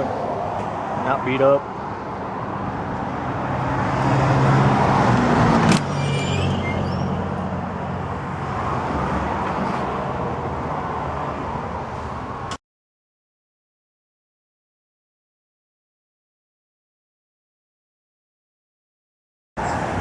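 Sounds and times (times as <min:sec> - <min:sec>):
traffic rumble: 0:00.0 - 0:12.6, 0:19.6 - 0:20.0
short high squeaks: 0:05.7 - 0:07.5.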